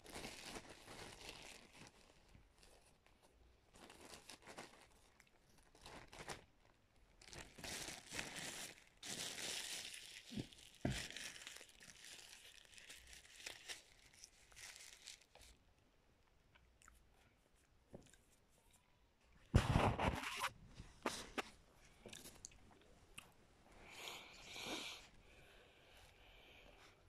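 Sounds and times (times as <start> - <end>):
crackers crunching while eaten: 7.2 - 15.6.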